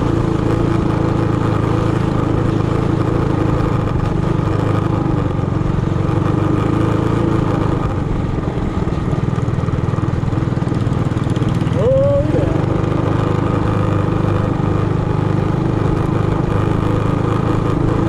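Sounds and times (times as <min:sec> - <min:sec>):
small engine running: 0:00.0 - 0:18.0.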